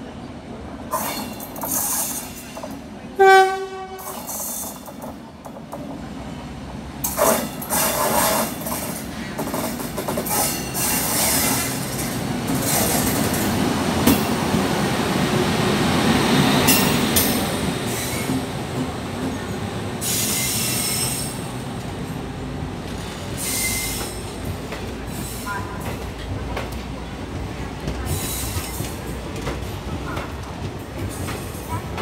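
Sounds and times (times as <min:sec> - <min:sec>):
train wheels rumbling on track: 0:00.0 - 0:32.0.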